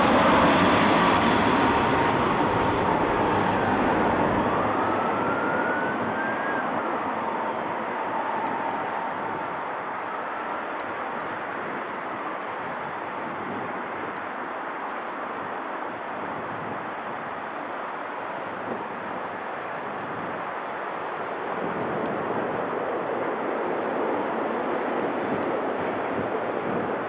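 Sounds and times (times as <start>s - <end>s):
jet engines rushing: 0.0s - 12.4s.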